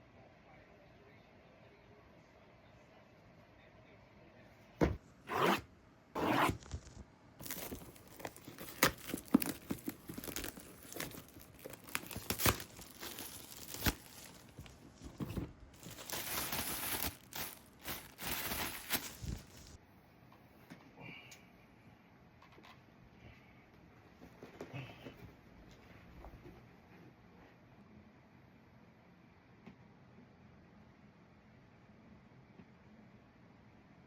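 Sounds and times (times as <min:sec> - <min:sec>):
packaging tearing: 0:06.2 - 0:19.8
packaging crinkling and rustling: 0:06.5 - 0:19.8.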